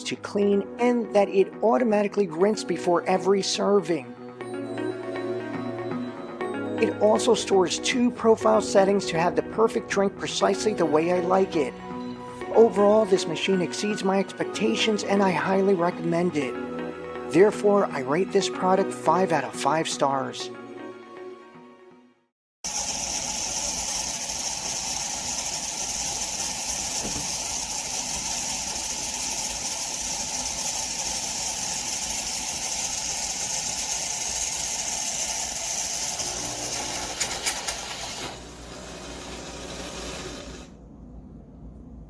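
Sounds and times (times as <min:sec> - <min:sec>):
espresso machine hissing: 0:22.6 - 0:40.8.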